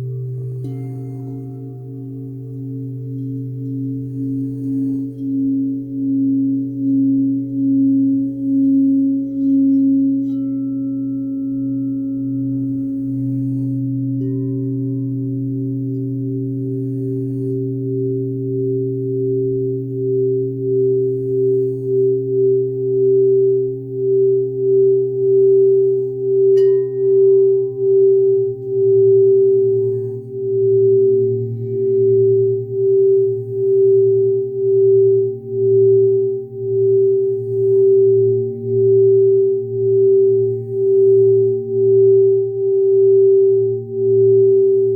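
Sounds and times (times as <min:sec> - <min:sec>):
singing bowls ringing: 0:00.0 - 0:44.9.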